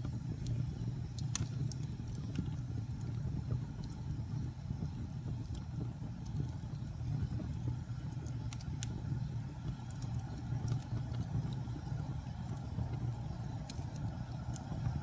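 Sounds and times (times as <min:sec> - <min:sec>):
fire flames rumbling: 0:00.0 - 0:15.0
wood fire crackling and popping: 0:00.0 - 0:15.0.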